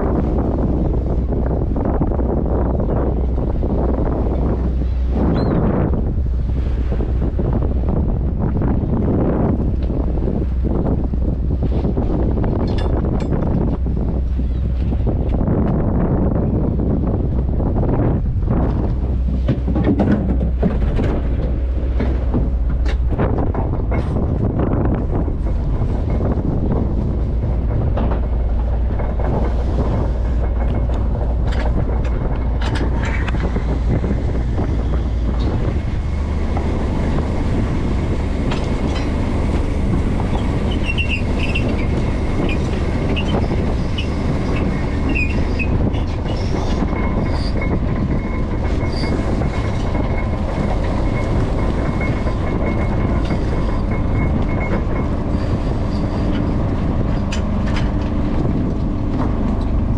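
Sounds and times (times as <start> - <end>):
diesel engine rumbling: 0.0 - 59.9
faint high squeaks: 40.3 - 44.2.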